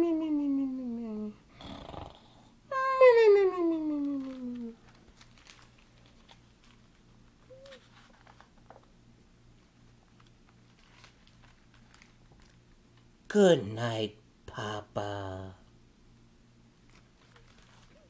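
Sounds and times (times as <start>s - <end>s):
faint low pulsing hum: 0.0s - 1.6s.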